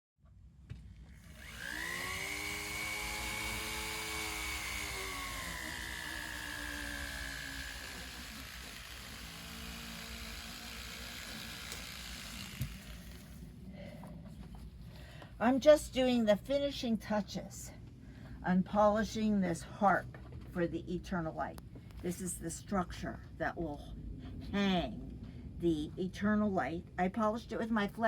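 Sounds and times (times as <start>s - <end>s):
rotary tool motor whine: 0.9s - 13.5s.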